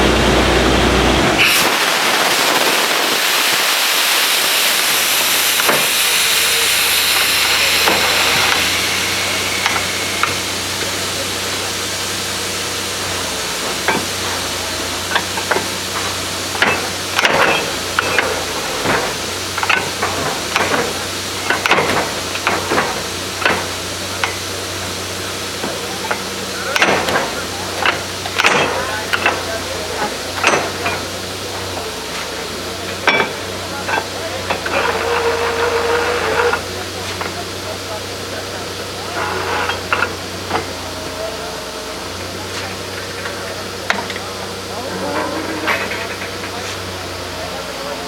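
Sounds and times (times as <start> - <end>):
machine hum: 0.0 - 12.8
loud steady hiss: 0.0 - 48.0.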